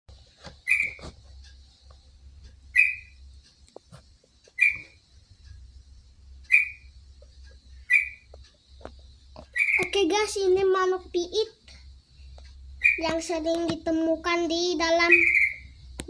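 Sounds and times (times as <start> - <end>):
faint low hum: 0.1 - 16.0
sparrow chirping: 0.6 - 1.1, 2.7 - 3.2, 4.5 - 5.0, 6.5 - 6.9, 7.8 - 8.4, 9.4 - 10.3, 12.8 - 13.3, 14.8 - 15.8.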